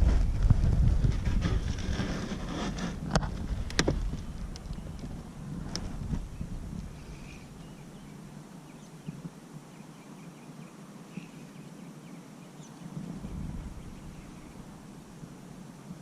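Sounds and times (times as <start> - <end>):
faint bird chirps: 6.3 - 14.7.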